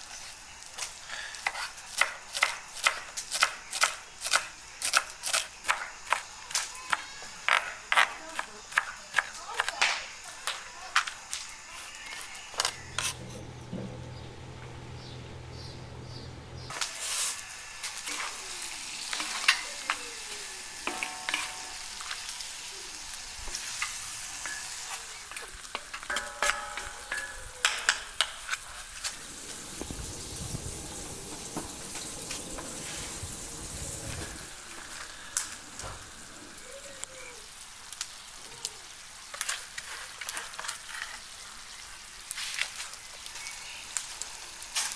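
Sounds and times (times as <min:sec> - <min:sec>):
food sizzling in a pan: 0:00.0 - 0:13.6, 0:16.7 - 0:44.9
utensil scraping a pan: 0:12.6 - 0:14.2
low hum: 0:12.8 - 0:16.7.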